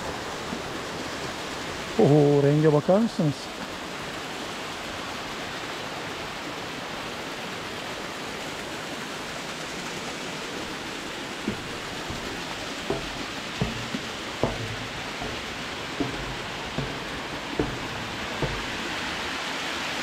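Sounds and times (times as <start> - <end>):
waterfall rushing: 0.0 - 20.0
short dull thumps: 10.6 - 19.6.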